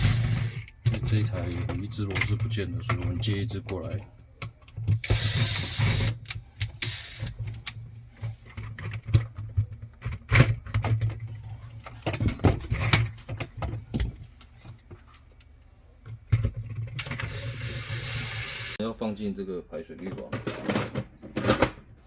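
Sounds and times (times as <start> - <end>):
screws and tools clinking: 0.0 - 3.2, 16.7 - 18.8.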